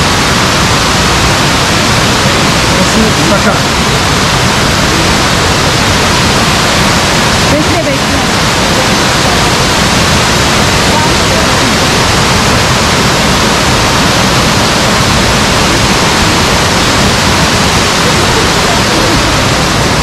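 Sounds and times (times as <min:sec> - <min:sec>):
waterfall roaring: 0:00.0 - 0:20.0.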